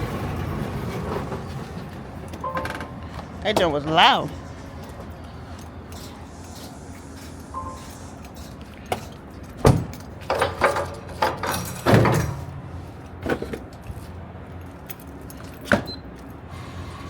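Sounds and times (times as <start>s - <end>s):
diesel truck engine idling: 1.6s - 10.2s.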